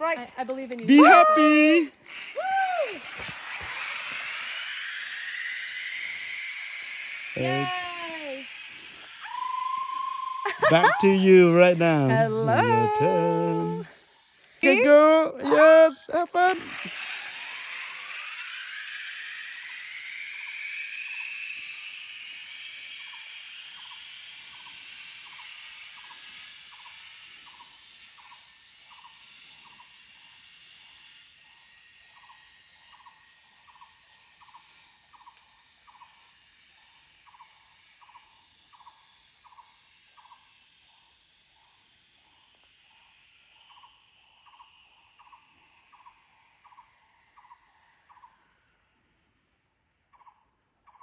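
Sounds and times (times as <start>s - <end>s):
zipline trolley hissing on cable: 0.0s - 49.3s.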